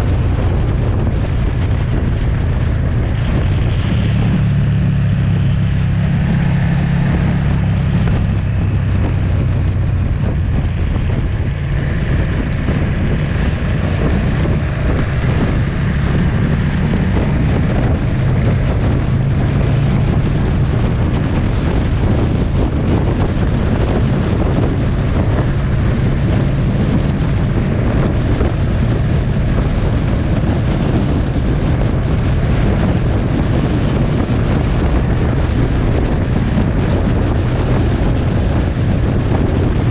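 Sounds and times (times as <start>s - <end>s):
motorcycle engine cruising: 0.0s - 39.9s
wind buffeting microphone: 0.0s - 39.9s.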